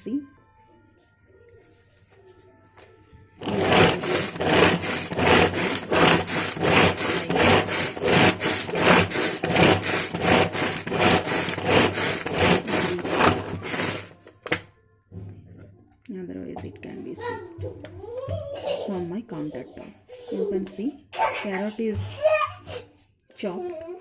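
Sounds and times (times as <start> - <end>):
pull-cord chopper chopping carrots: 3.4 - 14.6.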